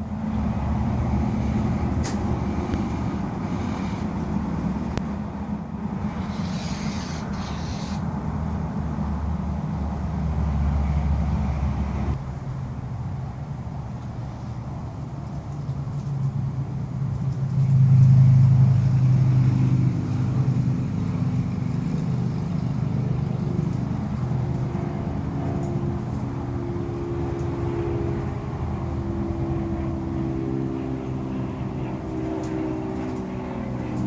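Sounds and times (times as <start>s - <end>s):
engine humming: 0.0s - 34.0s.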